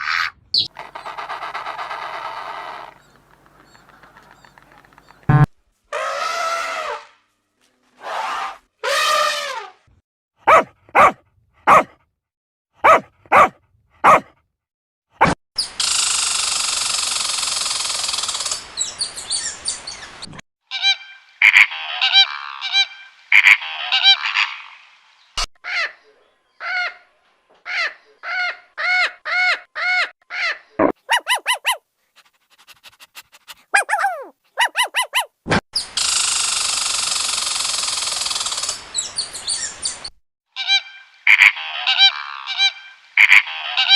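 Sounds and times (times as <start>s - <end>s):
quick repeated bird calls: 0.1s - 7.1s, 30.4s - 39.7s.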